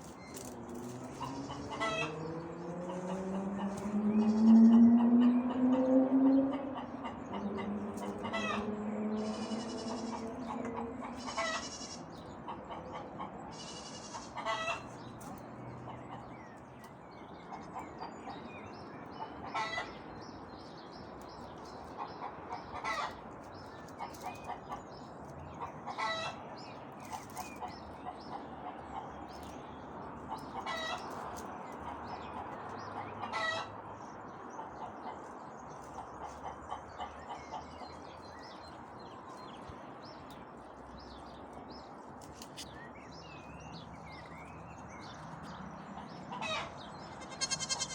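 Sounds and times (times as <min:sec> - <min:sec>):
hens clucking: 0:01.0 - 0:13.4, 0:45.9 - 0:47.9.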